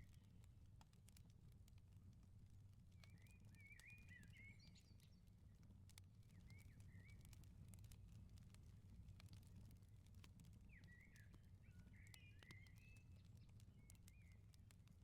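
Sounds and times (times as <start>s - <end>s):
wood fire crackling: 5.2s - 15.0s.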